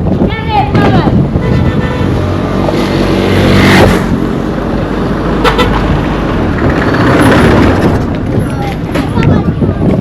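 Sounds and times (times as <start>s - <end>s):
vehicle engine passing: 2.0s - 8.5s.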